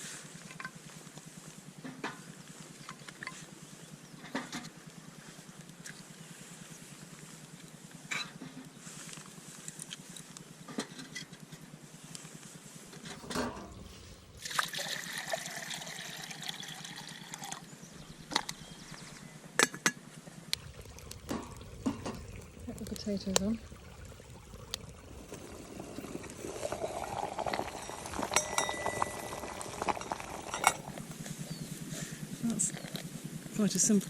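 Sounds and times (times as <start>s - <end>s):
stream trickling: 13.5s - 19.4s, 20.4s - 34.0s
hissing rush: 20.6s - 33.6s.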